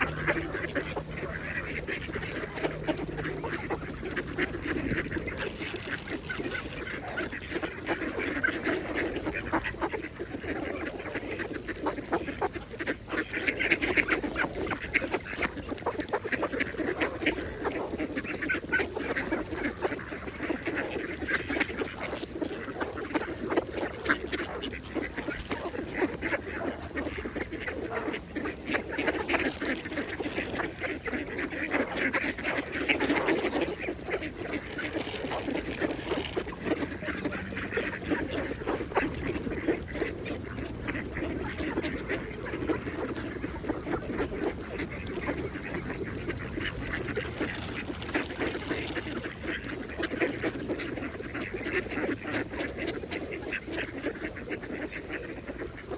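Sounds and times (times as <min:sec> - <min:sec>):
duck bills chattering in water: 0:00.0 - 0:55.9
ducks quacking: 0:00.0 - 0:55.9.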